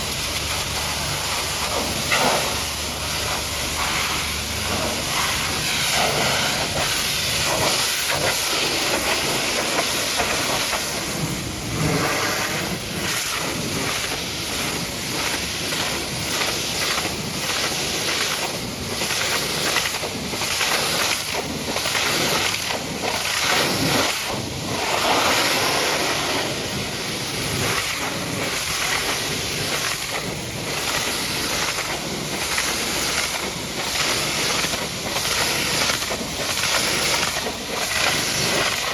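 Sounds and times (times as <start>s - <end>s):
pressure washer jet spraying: 0.0s - 38.9s.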